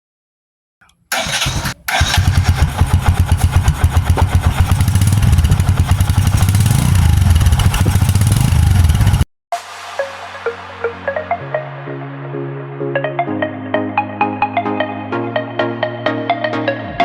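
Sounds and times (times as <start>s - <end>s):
motorcycle engine starting and running: 0.8s - 9.3s.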